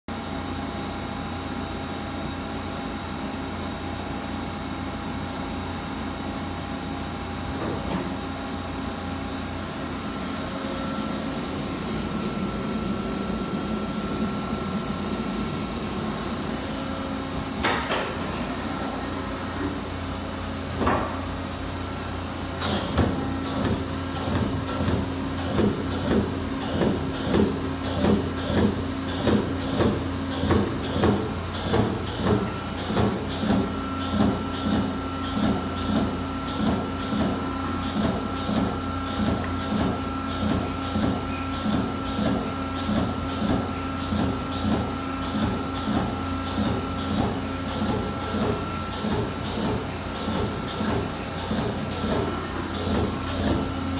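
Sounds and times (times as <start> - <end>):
machine hum: 8.7 - 40.8.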